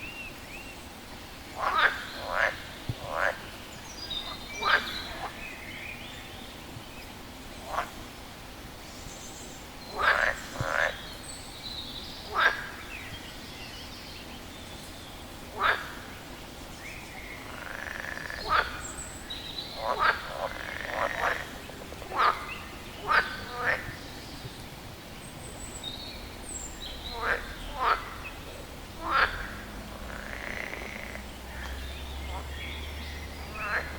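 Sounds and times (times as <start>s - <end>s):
faint background hiss: 0.0s - 33.9s
frog croaking: 1.6s - 3.5s, 4.2s - 5.4s, 9.9s - 11.1s, 12.3s - 12.8s, 15.6s - 16.1s, 17.4s - 19.0s, 19.7s - 24.0s, 26.8s - 32.8s, 33.4s - 33.9s.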